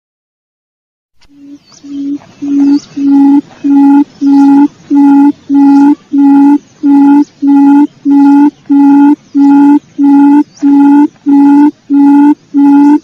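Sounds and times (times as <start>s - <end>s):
quail lure call hooting: 1.3s - 13.0s.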